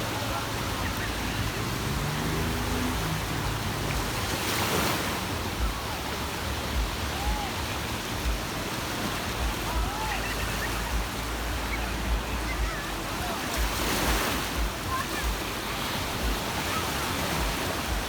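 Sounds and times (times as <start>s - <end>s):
sea waves washing onto beach: 0.0s - 18.0s.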